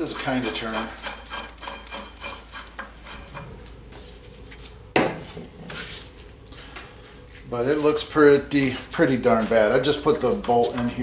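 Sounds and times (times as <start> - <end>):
metal clinking and scraping: 0.3 - 3.7.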